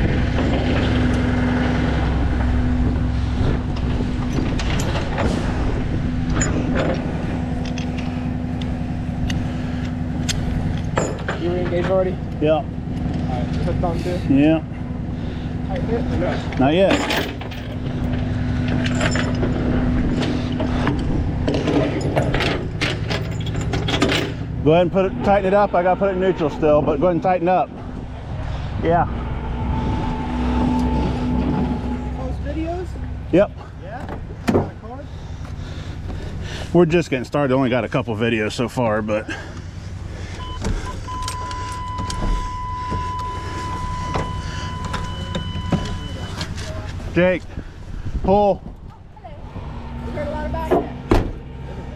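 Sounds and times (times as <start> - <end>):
tow truck engine running: 0.0 - 51.9
metal chains clanking: 3.7 - 8.6, 10.7 - 12.2, 15.9 - 20.8, 21.4 - 26.9
high whine: 24.6 - 33.3, 40.4 - 47.2.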